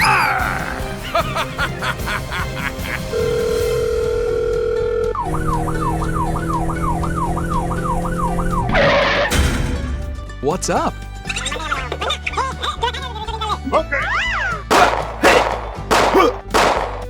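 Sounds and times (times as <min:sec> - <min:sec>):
electronic siren wail: 0:03.2 - 0:09.3
thump: 0:09.2 - 0:10.2.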